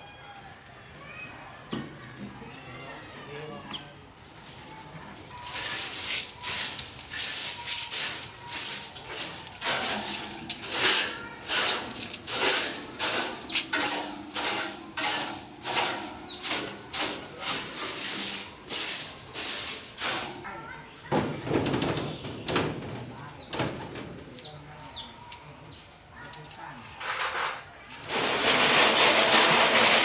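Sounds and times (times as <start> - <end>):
rhythmic scraping strokes: 5.4 - 20.5, 28.0 - 30.0.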